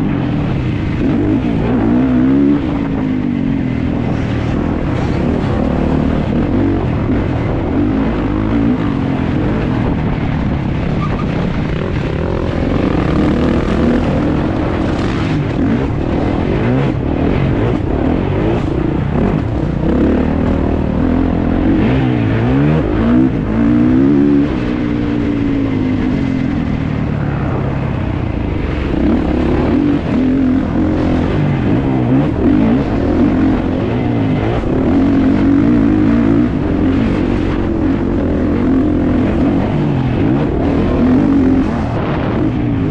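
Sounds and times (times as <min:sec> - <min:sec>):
motocross engine revving: 0:11.6 - 0:27.6.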